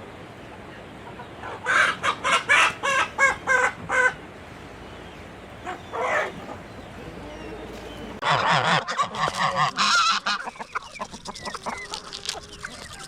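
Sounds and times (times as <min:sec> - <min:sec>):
chicken calling harshly: 0:08.2 - 0:13.0.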